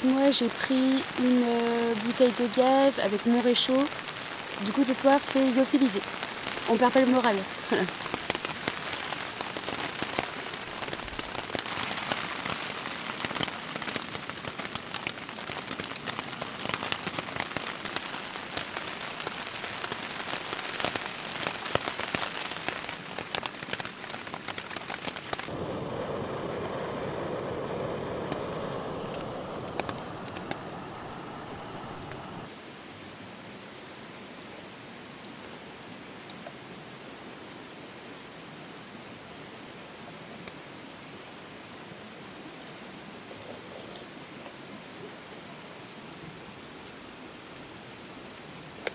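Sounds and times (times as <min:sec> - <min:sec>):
rain falling: 0:00.0 - 0:43.4, 0:44.0 - 0:48.9.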